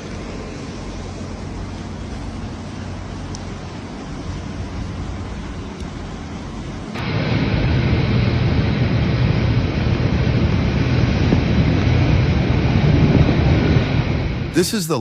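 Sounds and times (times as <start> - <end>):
rough sea: 0.0 - 15.0
storm wind rushing: 7.1 - 14.6.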